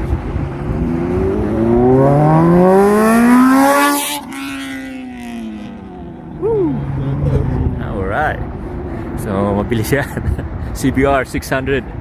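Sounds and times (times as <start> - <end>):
motorcycle engine accelerating: 0.0 - 8.2.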